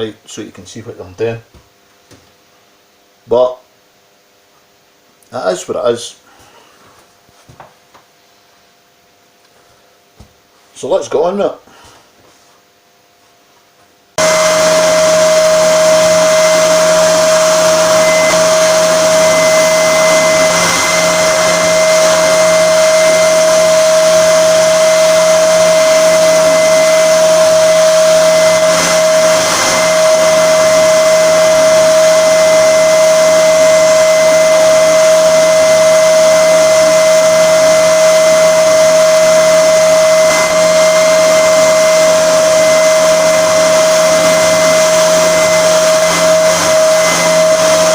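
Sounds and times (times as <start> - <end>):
spindle sander motor whine: 14.2 - 47.9.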